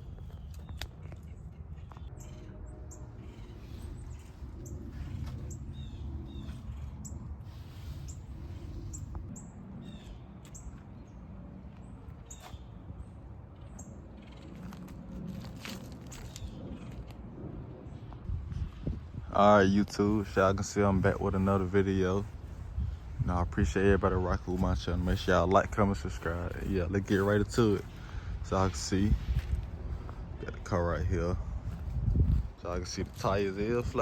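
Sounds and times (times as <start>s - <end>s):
small birds chirping: 0.0s - 15.1s
steady low rumble: 0.0s - 34.0s.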